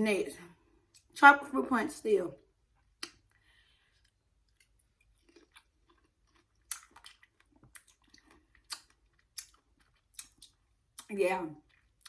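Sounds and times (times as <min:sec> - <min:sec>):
person chewing with mouth clicks: 0:03.0 - 0:12.0.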